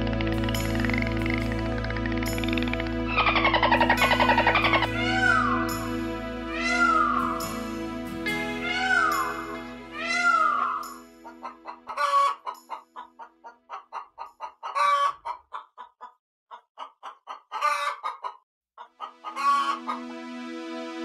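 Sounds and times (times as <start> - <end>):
hens clucking: 3.1 - 5.4, 10.2 - 20.1
hens cackling: 3.1 - 5.6, 10.0 - 20.2.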